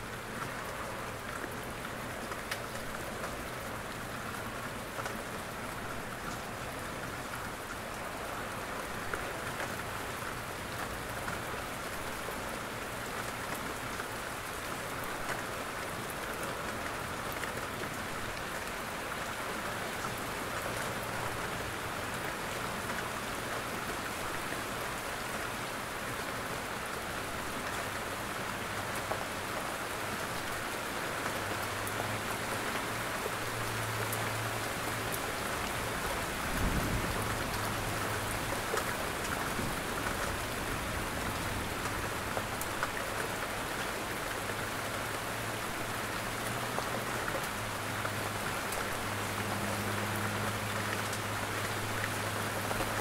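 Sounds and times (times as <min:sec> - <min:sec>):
raindrops hitting a roof: 0:00.0 - 0:53.0
steady rain falling: 0:00.0 - 0:53.0.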